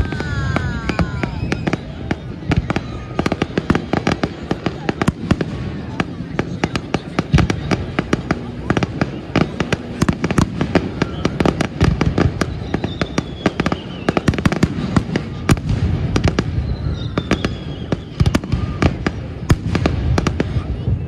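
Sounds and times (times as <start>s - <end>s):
faint falling whistles: 0.0s - 4.2s, 12.1s - 14.6s, 16.2s - 19.0s
fireworks bangs and crackles: 0.0s - 21.0s.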